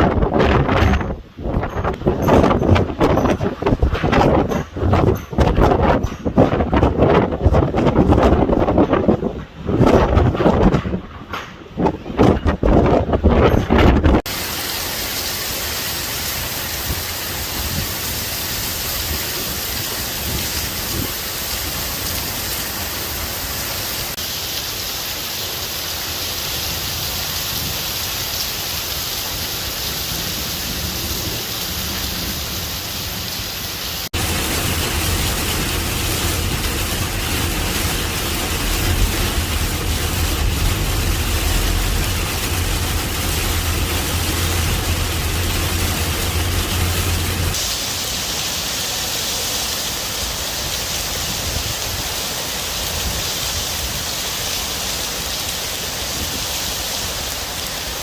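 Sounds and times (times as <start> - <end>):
wind: 0.0 - 58.0
heavy rain hiss: 14.2 - 58.0
heavy low rumble: 30.1 - 47.6.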